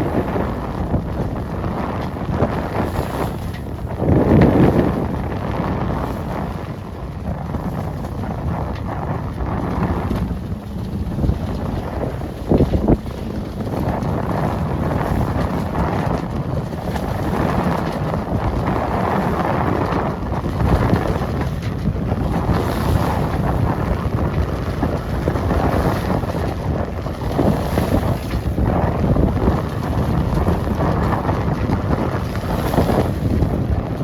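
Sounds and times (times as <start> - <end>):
water rushing past hull: 0.0 - 34.0
wind buffeting microphone: 0.0 - 34.0.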